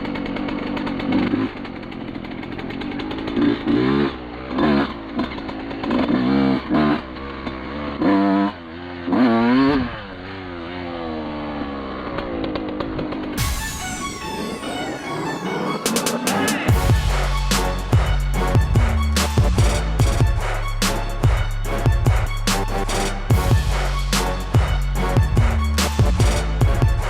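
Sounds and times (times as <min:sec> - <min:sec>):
two-stroke engine revving: 0:00.0 - 0:27.0.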